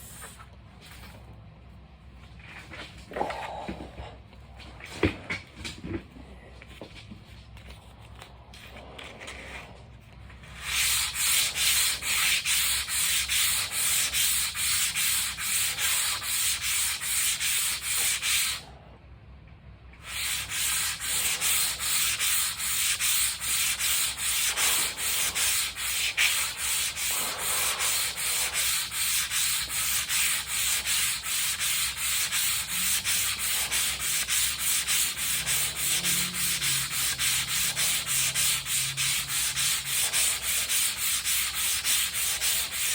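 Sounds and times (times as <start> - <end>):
sandpaper rubbing back and forth: 10.5 - 18.6, 20.0 - 42.9.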